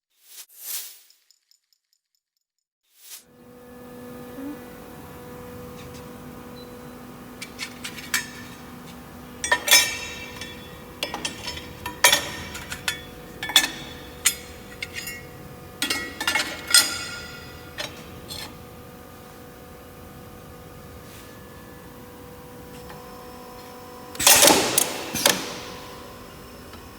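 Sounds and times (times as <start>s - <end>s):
welding machine humming: 3.3s - 26.9s.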